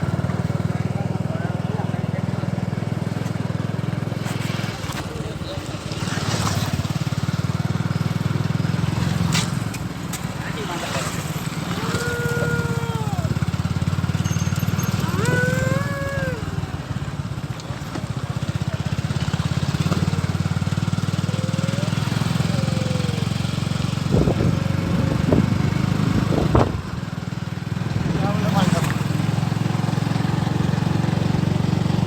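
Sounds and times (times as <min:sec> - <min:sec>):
engine running: 0:00.0 - 0:32.0
people calling out: 0:11.0 - 0:13.9, 0:14.5 - 0:17.0, 0:20.2 - 0:24.0.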